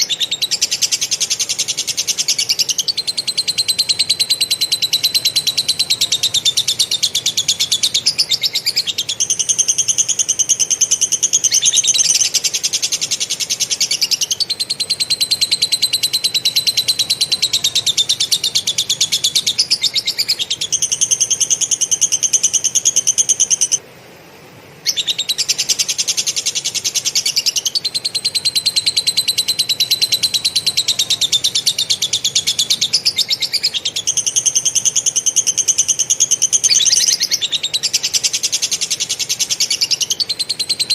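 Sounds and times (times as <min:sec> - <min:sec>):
songbird chattering trill: 0:00.0 - 0:23.8, 0:24.8 - 0:40.9.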